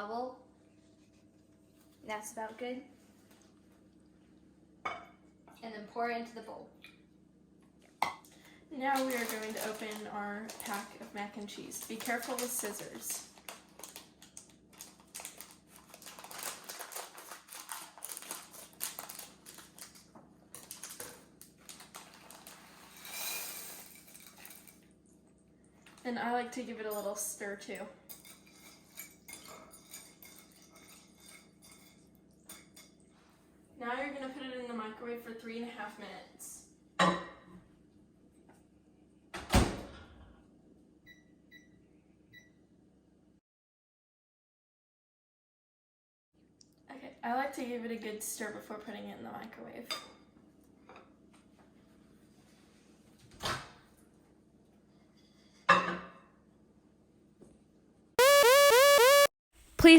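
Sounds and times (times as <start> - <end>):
plastic pouch crinkling: 8.9 - 22.9
short keypad beeps: 58.2 - 59.3.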